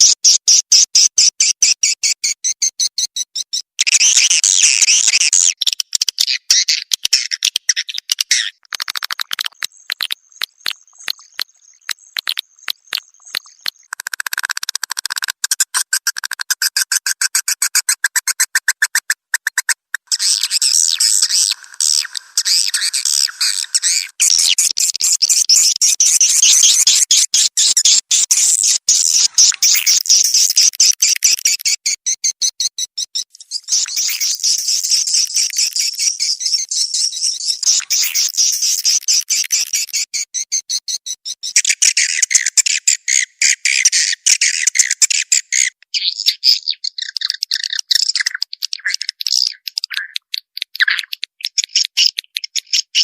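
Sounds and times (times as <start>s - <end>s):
chattering bird twitter: 1.0s - 15.3s, 18.9s - 53.0s
dry clicking pulses: 8.7s - 20.3s.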